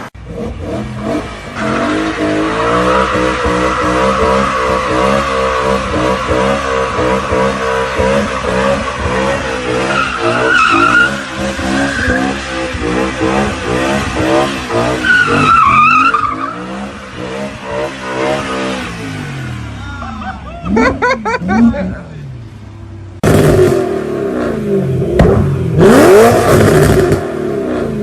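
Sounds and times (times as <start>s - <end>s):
car engine revving: 0.0s - 19.9s, 20.7s - 28.0s
tyres squealing: 1.6s - 12.7s.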